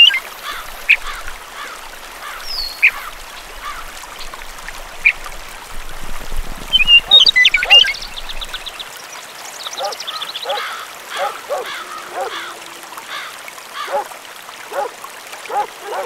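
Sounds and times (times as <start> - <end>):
birds chirping: 0.0 - 4.3, 6.7 - 8.9, 9.5 - 14.0
loud bird calls: 6.7 - 8.8, 9.6 - 14.0.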